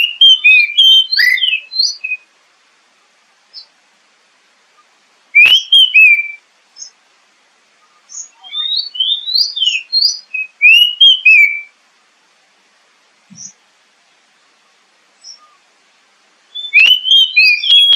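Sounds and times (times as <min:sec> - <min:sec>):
songbird whistled song: 0:00.0 - 0:02.3, 0:03.5 - 0:03.8, 0:04.7 - 0:07.0, 0:07.7 - 0:11.8, 0:13.3 - 0:13.6, 0:15.2 - 0:15.7, 0:16.5 - 0:17.9.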